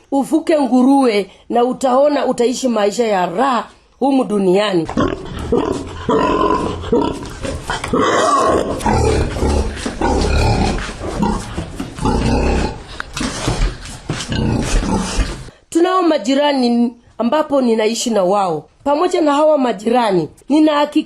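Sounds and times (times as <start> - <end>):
pigs grunting: 4.9 - 15.5.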